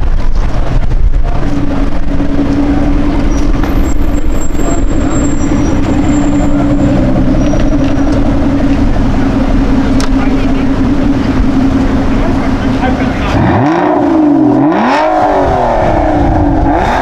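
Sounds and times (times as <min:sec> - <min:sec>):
street traffic noise: 0:00.0 - 0:17.0
vehicle engine running: 0:00.0 - 0:17.0.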